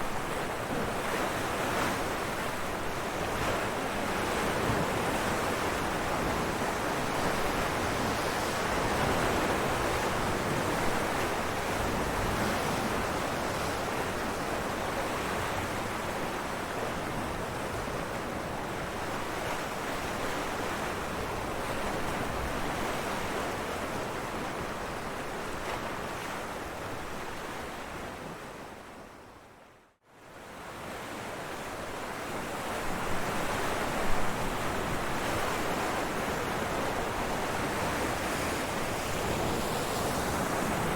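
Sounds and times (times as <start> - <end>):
ocean waves breaking on rocks: 0.0 - 24.5, 32.6 - 40.9.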